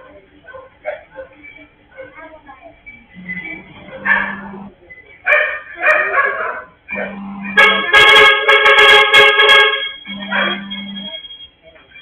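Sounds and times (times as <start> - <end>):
vehicle horn blast: 7.0 - 11.1.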